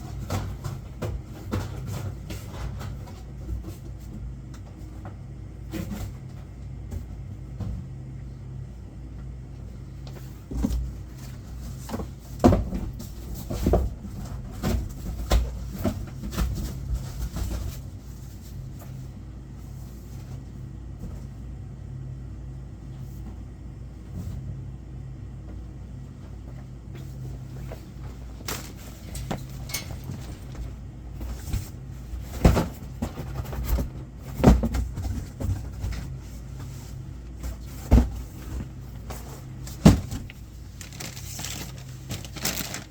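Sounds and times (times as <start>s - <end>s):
steady low hum: 0.0s - 42.9s
boxes knocking and thumping: 11.6s - 17.9s, 27.7s - 42.9s.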